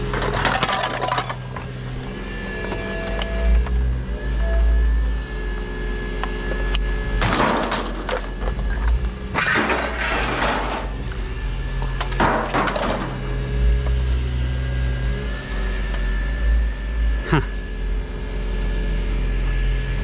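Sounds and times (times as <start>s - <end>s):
rummaging with rustling and clattering: 0.0s - 1.7s, 7.2s - 11.0s, 11.9s - 13.2s
engine hum: 0.0s - 20.0s.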